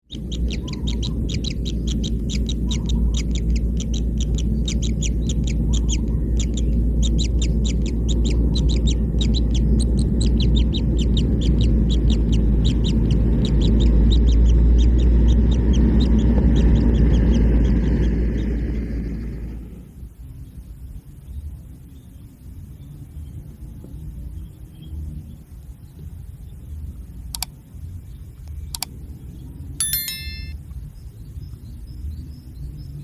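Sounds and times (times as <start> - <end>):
bird chicks begging calls: 0.1 - 18.6.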